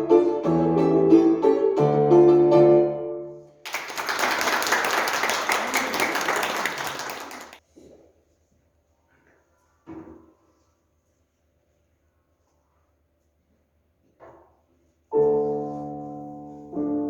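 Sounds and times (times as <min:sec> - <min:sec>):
live piano music: 0:00.0 - 0:03.4, 0:15.1 - 0:17.0
audience applauding: 0:03.6 - 0:07.6.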